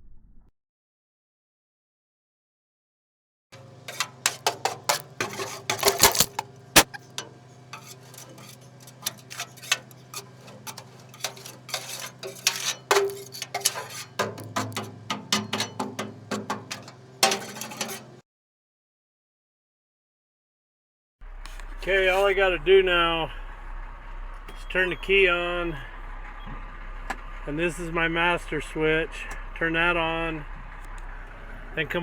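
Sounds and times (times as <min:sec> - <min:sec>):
rocks clanking and scraping on metal: 0:03.6 - 0:18.2
steady low hum: 0:03.6 - 0:18.2.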